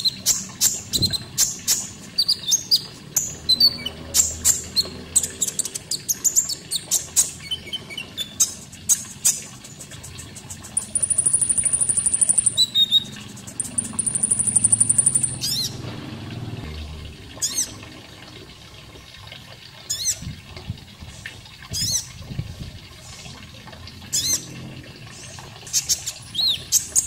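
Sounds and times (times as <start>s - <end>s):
running water: 0.0s - 27.0s
bird chirping phrases: 10.1s - 15.8s
bird high trills: 10.8s - 15.7s.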